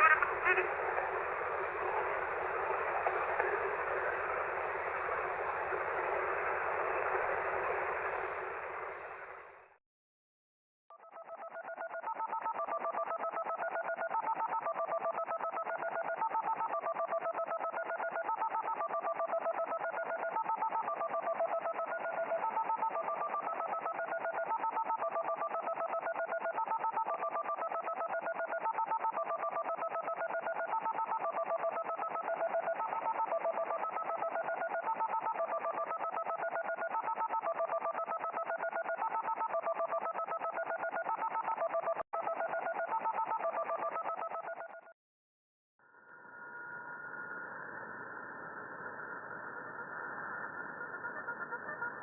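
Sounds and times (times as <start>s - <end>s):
shortwave radio noise: 0.0s - 9.6s
telephone-like radio tones: 0.0s - 9.6s, 10.9s - 45.0s, 48.9s - 52.0s.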